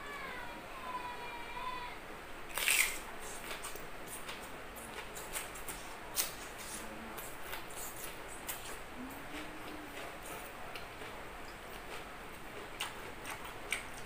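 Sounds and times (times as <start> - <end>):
loud bite: 2.5 - 8.8
chewing with mouth clicks: 2.5 - 14.0.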